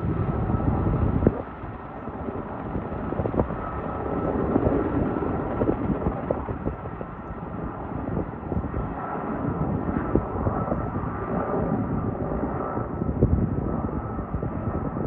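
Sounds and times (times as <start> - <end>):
steady rumble: 0.0 - 7.0.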